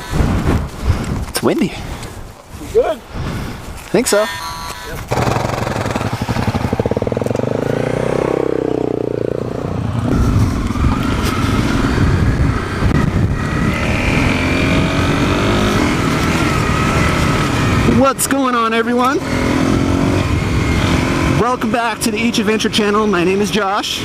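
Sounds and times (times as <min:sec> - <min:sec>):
motorcycle engine revving: 0:05.0 - 0:24.0.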